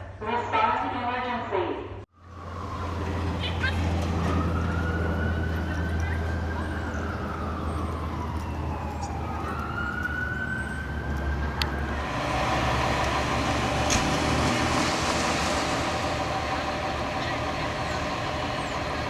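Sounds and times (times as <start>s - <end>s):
fire engine engine and road noise: 2.0s - 19.0s
fire engine siren wailing: 2.1s - 19.0s.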